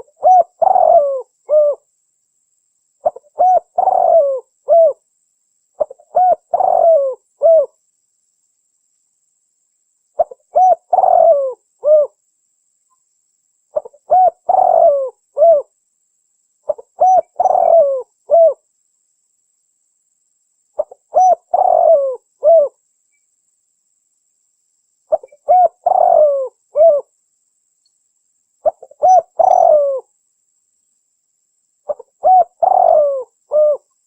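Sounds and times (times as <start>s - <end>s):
dove cooing: 0.0s - 1.8s, 3.0s - 5.0s, 5.8s - 7.8s, 10.2s - 12.2s, 13.7s - 15.7s, 16.7s - 18.6s, 20.8s - 22.8s, 25.1s - 27.1s, 28.6s - 30.1s, 31.9s - 33.9s.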